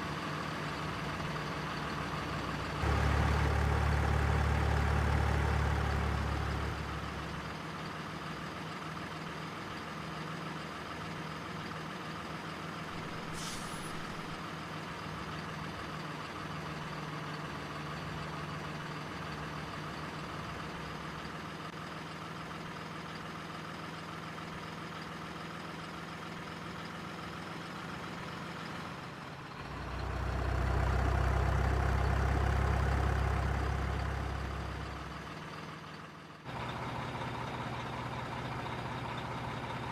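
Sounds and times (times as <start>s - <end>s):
diesel truck engine running: 0.0s - 39.9s
brief high hiss: 13.2s - 14.2s.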